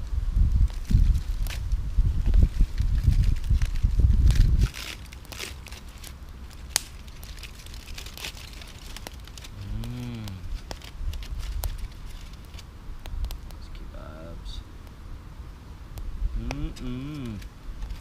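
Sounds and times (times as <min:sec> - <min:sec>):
sharp crackles and clicks: 0:00.0 - 0:15.0, 0:15.9 - 0:18.0
cow lowing: 0:09.5 - 0:10.6.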